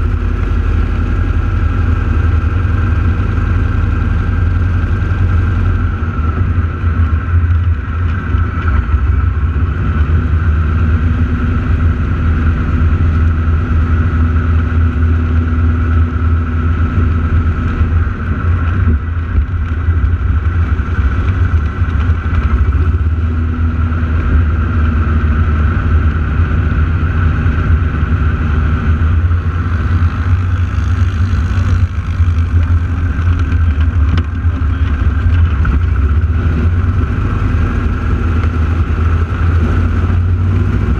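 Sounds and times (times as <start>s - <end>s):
heavy low rumble: 0.0s - 40.9s
propeller plane engines droning: 0.0s - 40.9s.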